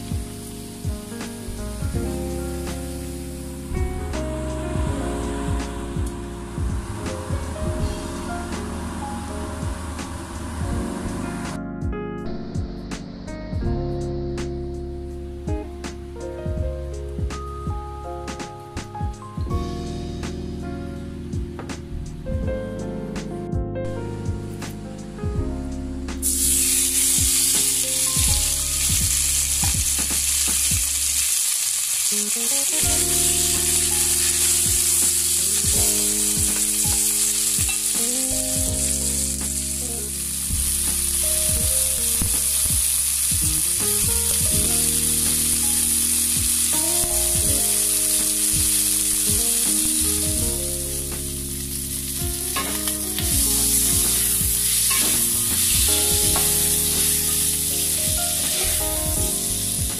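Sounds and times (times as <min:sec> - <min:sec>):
shrimp sizzling in hot oil: 0:00.0 - 0:01.6, 0:02.8 - 0:03.7, 0:26.2 - 0:59.9
tongs and spatula knocking and scraping: 0:52.6 - 0:57.4.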